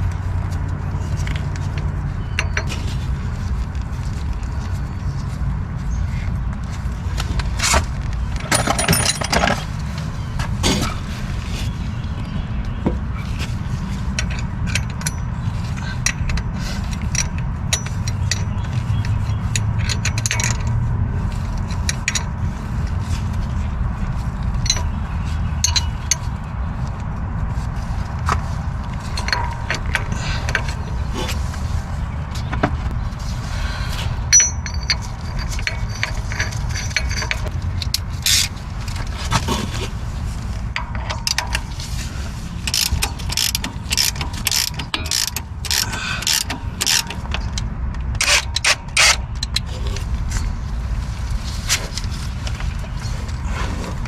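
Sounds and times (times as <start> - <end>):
steady low rumble: 0.0 - 54.0
hand tools clinking on metal: 7.6 - 9.8, 34.3 - 38.5.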